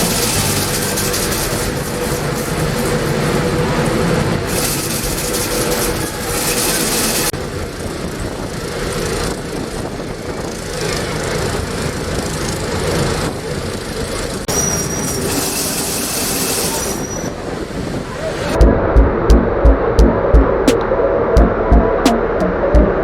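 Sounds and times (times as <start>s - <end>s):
hiss: 0.0s - 7.3s, 14.5s - 17.4s
engine rumble: 0.0s - 14.5s.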